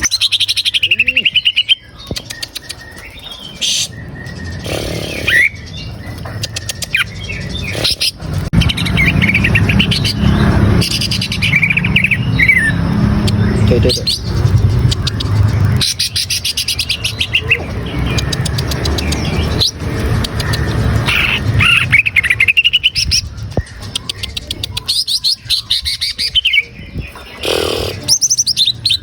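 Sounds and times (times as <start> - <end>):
bird singing chattering trills: 0.0 - 29.0
low rumble: 7.2 - 23.9.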